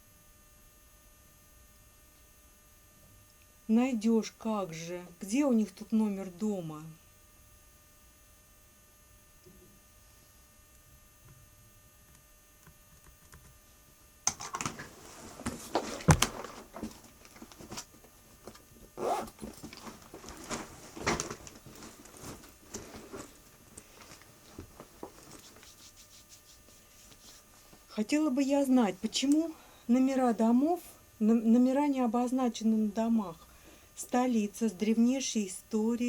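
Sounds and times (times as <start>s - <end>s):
objects being handled: 14.3s - 27.9s.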